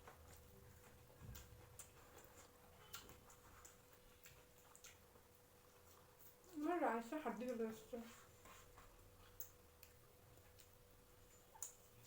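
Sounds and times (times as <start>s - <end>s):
faint clicks from people eating: 0.0s - 12.0s.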